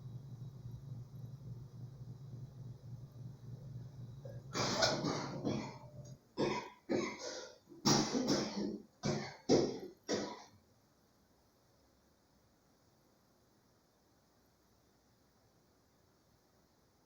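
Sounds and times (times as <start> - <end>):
low steady hum: 0.0 - 17.0
person coughing: 4.5 - 10.5.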